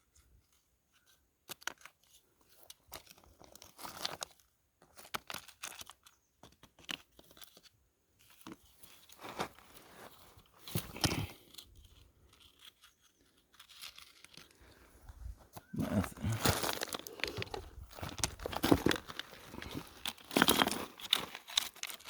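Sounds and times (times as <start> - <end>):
gravel crunching scrapes: 8.7 - 22.0
stones clacking: 13.5 - 22.0.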